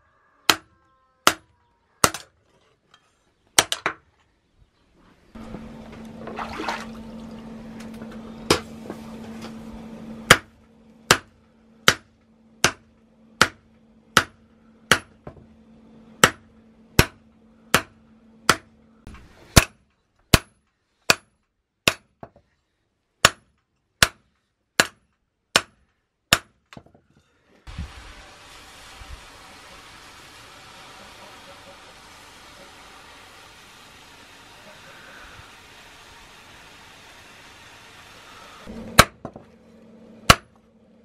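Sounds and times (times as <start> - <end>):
steady low hum: 5.0 - 19.8, 27.7 - 41.0
hammer striking metal: 14.2 - 15.4, 16.2 - 18.7, 40.2 - 40.5
steady hiss: 27.7 - 38.7.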